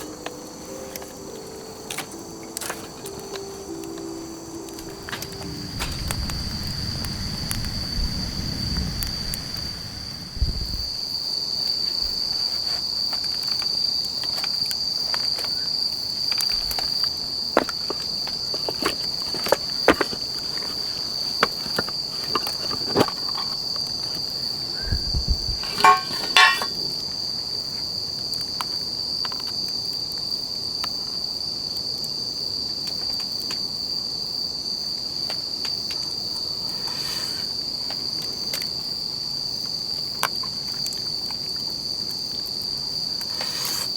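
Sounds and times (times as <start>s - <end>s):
crickets chirring: 0.0s - 43.9s
clicks and knocks: 25.6s - 26.8s.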